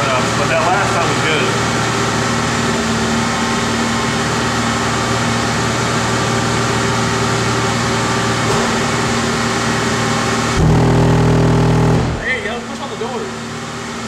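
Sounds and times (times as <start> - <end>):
fan running: 0.0 - 14.0
car engine idling: 8.8 - 13.6.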